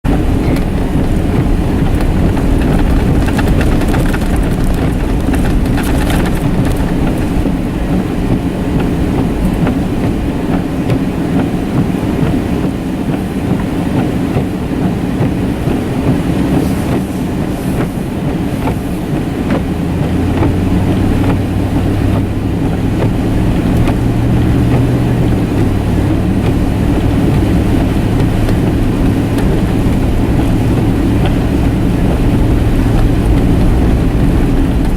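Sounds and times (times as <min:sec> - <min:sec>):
vehicle engine and tyre rumble: 0:00.0 - 0:34.9
clicks and rattles: 0:00.1 - 0:07.4.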